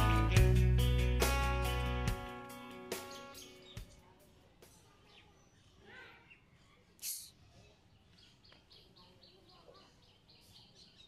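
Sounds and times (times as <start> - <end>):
small bird chirping: 2.9 - 11.0
brief hiss: 7.0 - 7.4.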